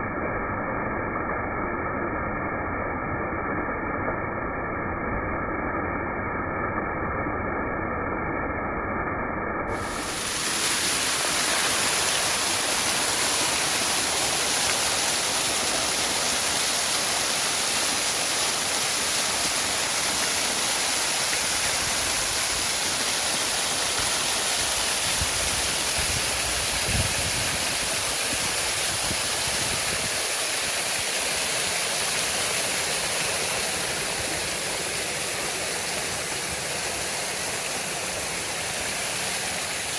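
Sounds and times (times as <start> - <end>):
waterfall roaring: 9.7 - 39.9.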